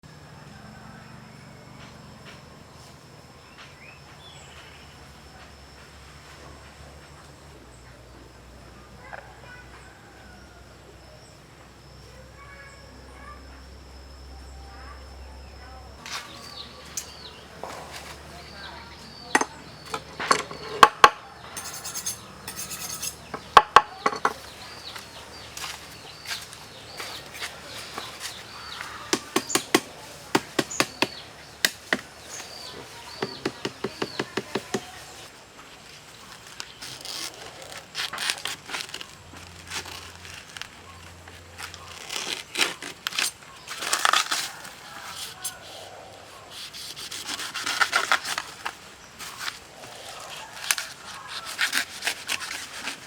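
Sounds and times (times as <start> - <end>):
insects chirping: 0.1 - 53.0
knocks and scrapes on wood: 29.1 - 32.5, 33.1 - 35.2.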